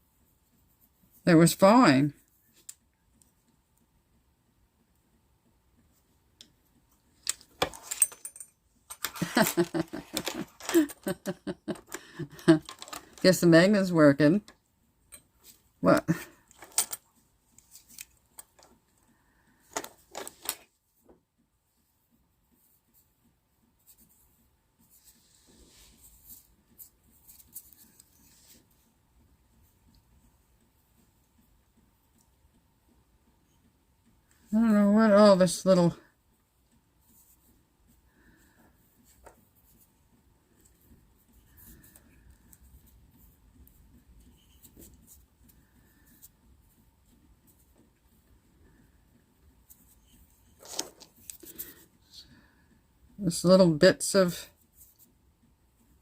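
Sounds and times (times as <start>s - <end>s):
faint handling rustle: 15.1s - 52.8s, 54.4s - 56.0s.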